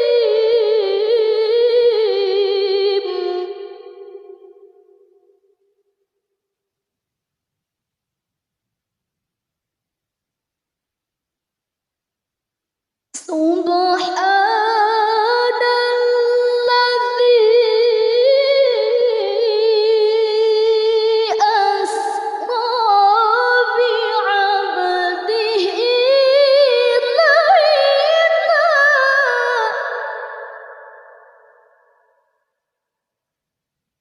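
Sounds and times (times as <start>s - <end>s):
woman chanting melodically: 0.0s - 4.8s, 13.2s - 31.6s.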